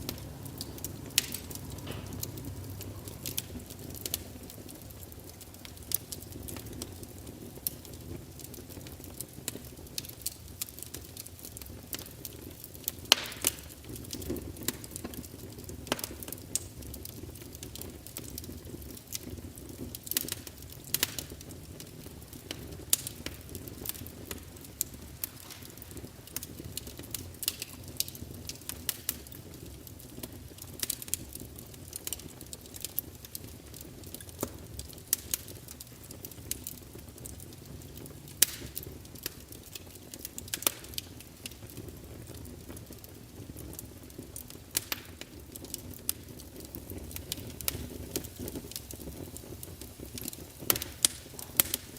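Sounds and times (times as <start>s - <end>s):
fire crackling: 0.0s - 51.9s.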